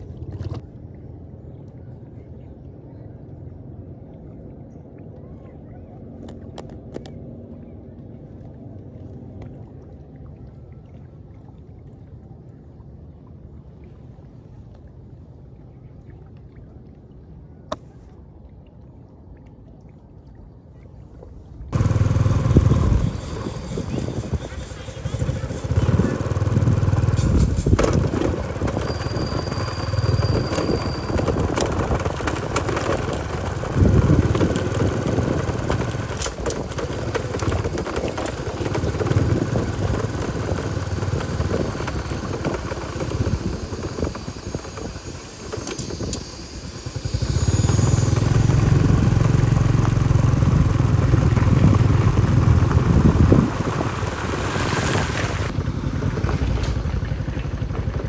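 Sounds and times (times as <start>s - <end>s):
motorbike engine running: 21.7s - 58.0s.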